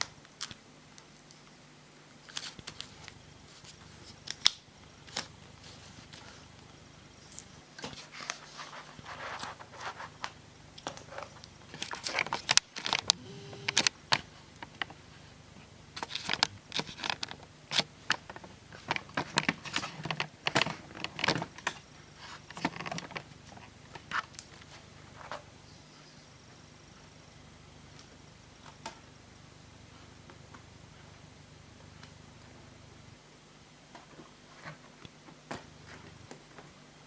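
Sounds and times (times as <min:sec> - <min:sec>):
plastic rustling: 0:02.2 - 0:25.6
plastic parts clicking and tapping: 0:09.2 - 0:25.4.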